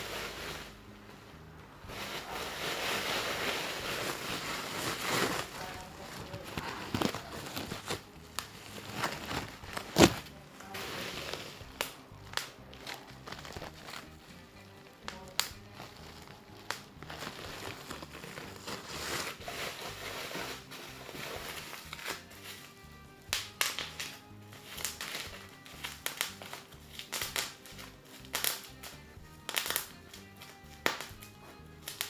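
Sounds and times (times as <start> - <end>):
crinkling and rustling: 0.0 - 32.0.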